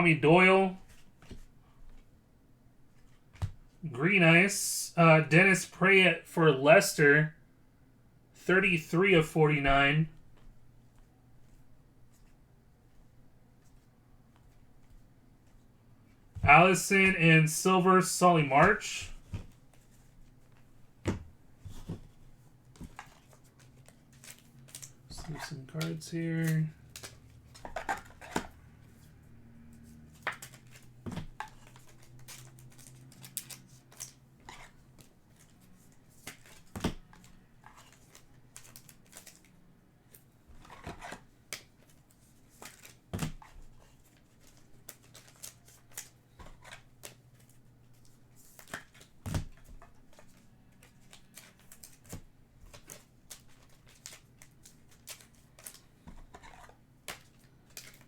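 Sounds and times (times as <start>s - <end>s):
trading cards clicking and snapping: 22.8s - 28.5s, 29.7s - 35.5s, 48.6s - 58.0s.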